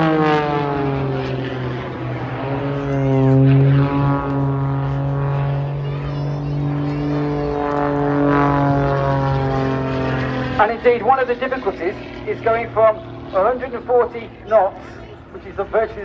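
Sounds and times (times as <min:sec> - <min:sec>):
propeller plane engine: 0:00.0 - 0:16.0.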